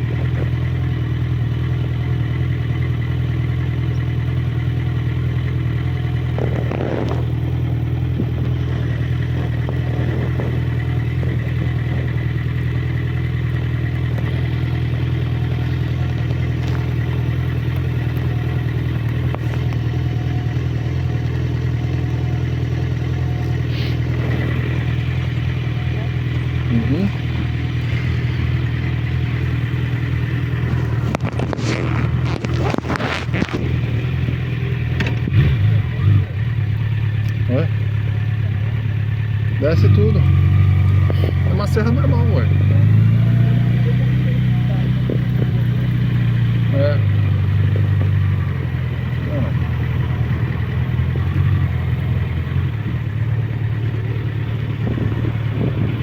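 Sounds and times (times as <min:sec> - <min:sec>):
motorcycle engine running: 0:00.0 - 0:56.0
microphone rustling: 0:06.3 - 0:12.4, 0:16.0 - 0:18.3, 0:29.3 - 0:35.2, 0:54.0 - 0:56.0.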